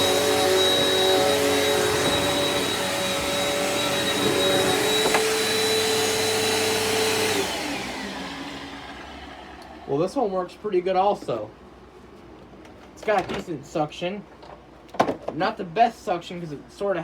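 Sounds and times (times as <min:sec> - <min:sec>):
vacuum cleaner motor whine: 0:00.0 - 0:10.0.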